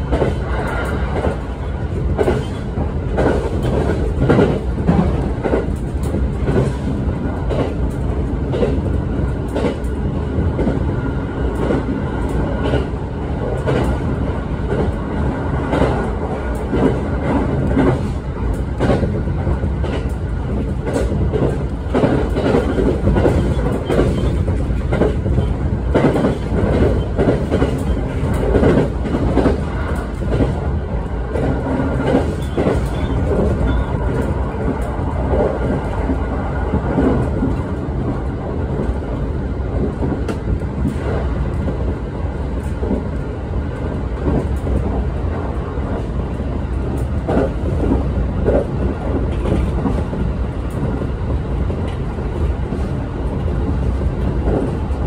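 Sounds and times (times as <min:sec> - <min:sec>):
train rumble from inside: 0:00.0 - 0:55.0.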